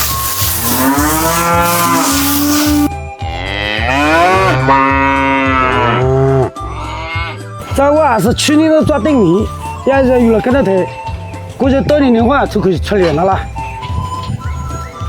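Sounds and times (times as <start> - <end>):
cow mooing: 0.6 - 7.4.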